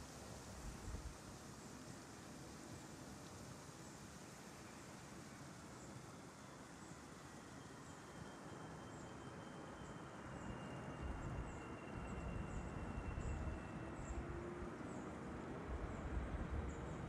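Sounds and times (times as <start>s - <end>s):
faint high whine: 4.3s - 17.0s.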